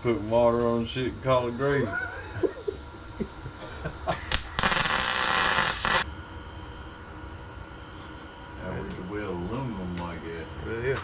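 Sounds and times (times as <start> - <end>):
welder arc crackling: 4.1 - 6.1.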